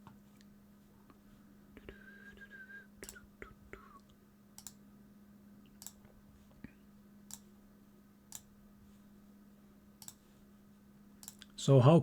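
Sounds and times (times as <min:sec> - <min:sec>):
faint steady hum: 0:00.0 - 0:12.0
short clicks: 0:04.6 - 0:04.8, 0:10.0 - 0:10.2, 0:11.2 - 0:11.6.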